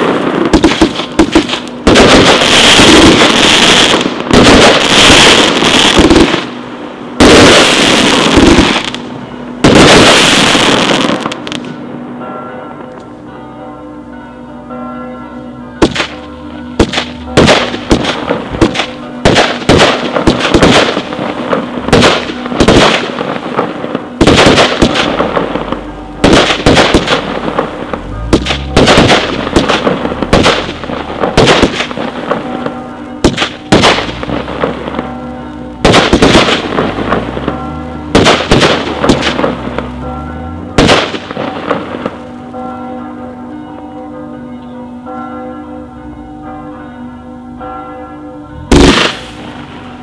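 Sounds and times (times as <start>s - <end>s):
firework shots: 0.0s - 6.6s, 7.2s - 9.0s, 9.6s - 11.8s, 15.8s - 16.2s, 16.8s - 35.1s, 35.8s - 40.0s, 40.8s - 42.2s, 48.6s - 49.9s
crackling firework bursts: 0.0s - 11.8s, 16.8s - 35.1s, 35.7s - 40.1s, 40.8s - 42.3s, 48.7s - 50.0s.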